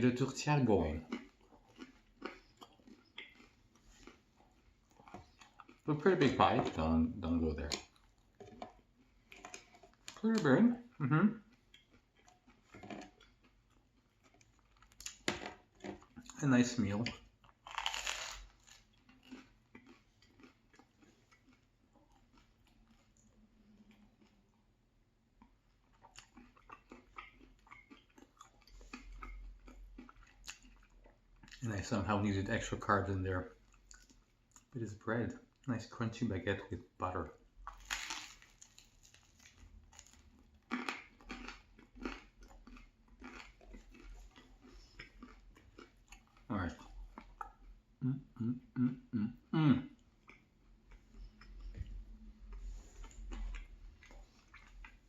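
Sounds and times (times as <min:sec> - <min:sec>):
person chewing food: 0:00.8 - 0:31.7, 0:33.5 - 0:34.8, 0:37.6 - 0:48.1, 0:49.9 - 0:55.0.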